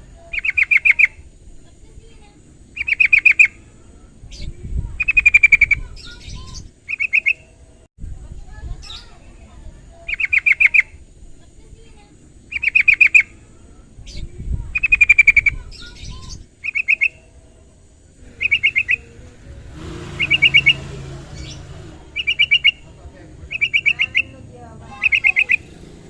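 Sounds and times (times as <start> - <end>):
bulbul calling in rapid notes: 0.2 - 1.2, 2.8 - 3.7, 4.3 - 7.6, 10.1 - 11.0, 12.5 - 13.4, 14.8 - 17.4, 18.2 - 26.0.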